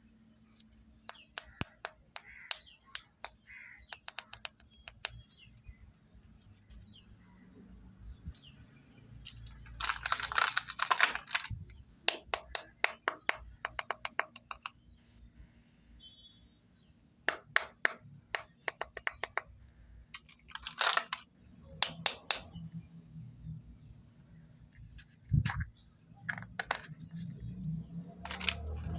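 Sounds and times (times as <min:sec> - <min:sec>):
plastic toy pieces clicking: 0:01.1 - 0:05.2, 0:09.2 - 0:14.8, 0:17.3 - 0:19.5, 0:20.1 - 0:22.5, 0:25.5 - 0:27.4, 0:28.2 - 0:28.9.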